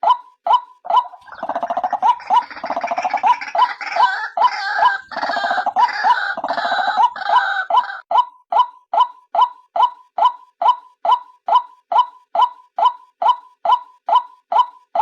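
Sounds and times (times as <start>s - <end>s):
gurgling croaking chorus: 1.1s - 7.7s.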